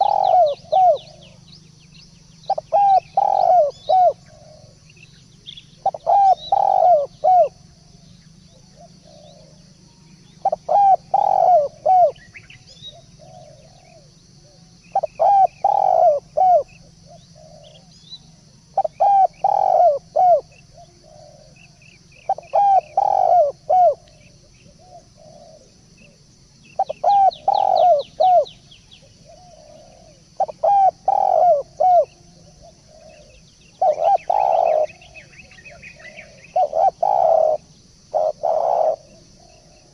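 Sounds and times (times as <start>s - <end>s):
turtledove cooing: 0.0s - 1.4s, 2.5s - 4.8s, 5.8s - 7.5s, 10.4s - 12.2s, 15.0s - 17.8s, 18.8s - 21.6s, 22.3s - 24.0s, 26.8s - 28.5s, 29.2s - 35.2s, 35.9s - 39.9s
faint small bird chirps: 0.0s - 39.9s.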